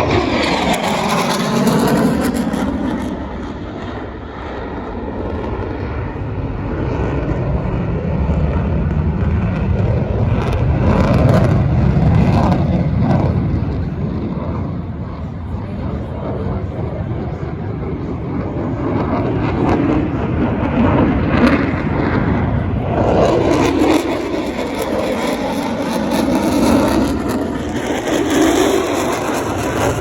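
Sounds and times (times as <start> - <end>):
aircraft engine roar: 0.0 - 30.0.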